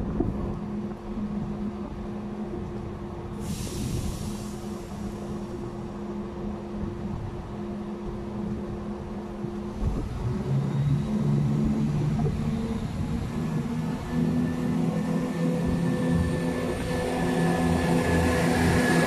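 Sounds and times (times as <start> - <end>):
train idling hum: 0.4 - 19.0
train pulling away: 3.3 - 6.6, 10.0 - 19.0.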